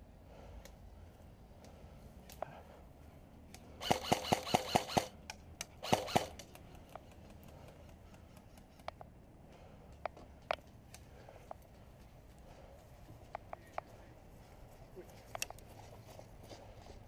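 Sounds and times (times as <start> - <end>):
faint airsoft fire clicks: 3.5 - 9.2
airsoft gun shots: 3.8 - 5.2, 5.8 - 6.4.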